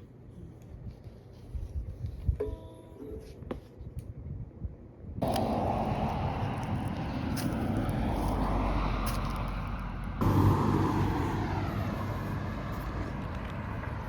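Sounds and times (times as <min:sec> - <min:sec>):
road traffic passing: 0:05.2 - 0:14.0.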